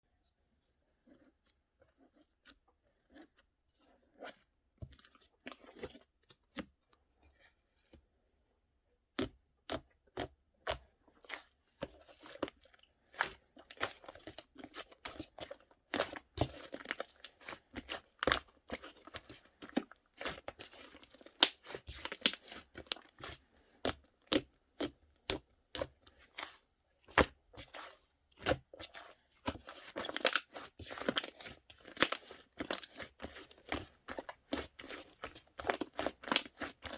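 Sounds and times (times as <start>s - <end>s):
slime squished by hand: 12.1s - 36.9s.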